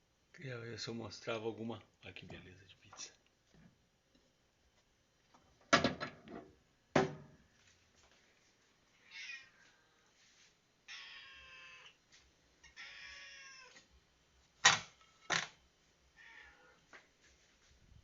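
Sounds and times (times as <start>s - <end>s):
cat meowing: 9.0s - 9.6s, 10.9s - 12.0s, 12.6s - 13.8s, 16.2s - 16.8s.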